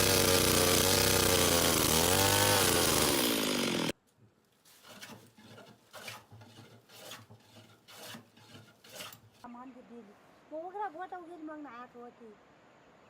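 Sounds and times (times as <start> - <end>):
scraping strokes on wood: 4.6 - 9.5.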